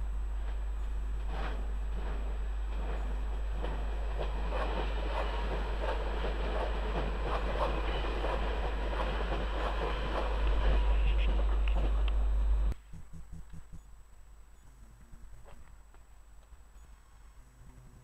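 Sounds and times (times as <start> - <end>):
train wheels clicking over rail joints: 0.4 - 12.2.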